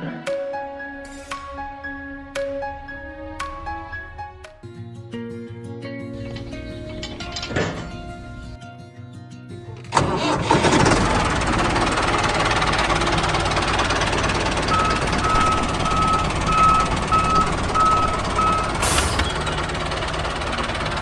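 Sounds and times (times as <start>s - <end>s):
quiet music: 0.0s - 10.2s
engine running loudly: 10.0s - 21.0s
reversing alarm beeping: 14.6s - 19.5s.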